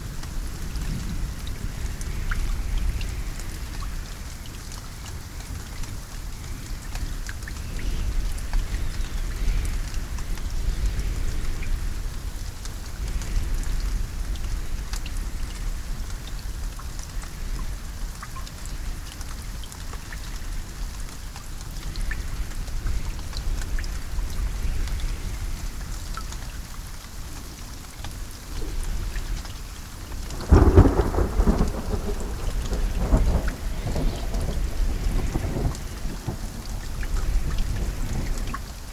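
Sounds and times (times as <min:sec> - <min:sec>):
steady rain: 0:00.0 - 0:38.9
thunder rolling: 0:30.1 - 0:38.4.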